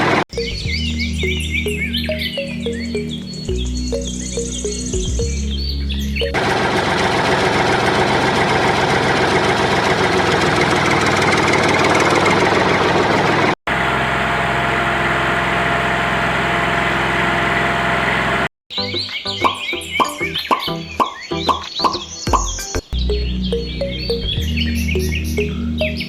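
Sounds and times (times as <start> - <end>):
engine idling: 6.2 - 18.5.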